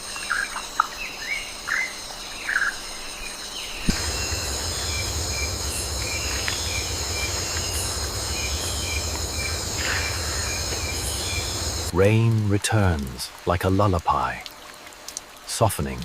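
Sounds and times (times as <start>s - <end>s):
high-pitched insect chorus: 0.0s - 11.9s
low rumble and hiss: 3.9s - 13.4s.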